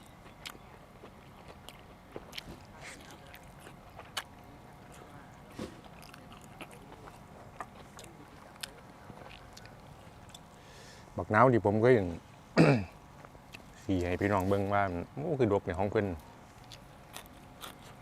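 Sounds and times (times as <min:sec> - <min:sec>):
person chewing crunchy food: 0:00.0 - 0:10.6, 0:16.4 - 0:18.0.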